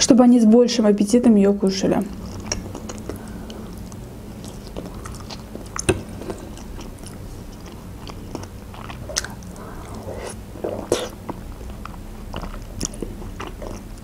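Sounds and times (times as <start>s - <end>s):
chewing soft food: 2.1s - 14.0s
wet mouth clicks: 2.2s - 7.8s, 8.4s - 13.8s.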